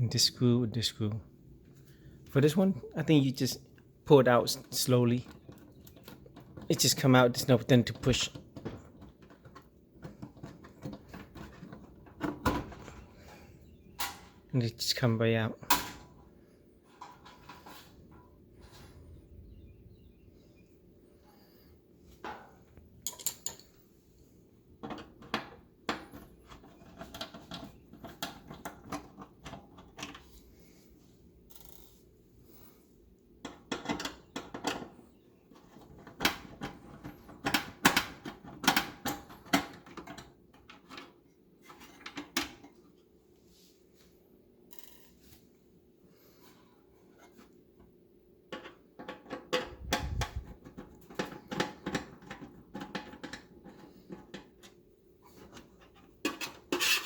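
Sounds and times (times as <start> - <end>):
clicks and rattles of handling parts: 3.7 - 13.3, 15.6 - 18.4, 22.1 - 23.8, 24.8 - 30.6, 31.4 - 32.1, 33.4 - 43.1, 46.5 - 57.0.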